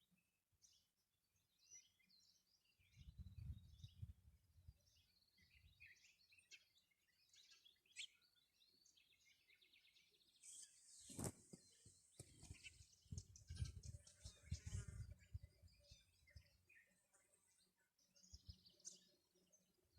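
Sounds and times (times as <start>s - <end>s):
birds chirping: 4.8s - 19.9s.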